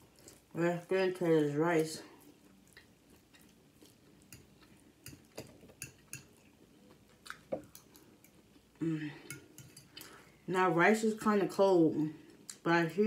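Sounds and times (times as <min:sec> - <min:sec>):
close chewing with mouth smacks: 0:02.1 - 0:08.8.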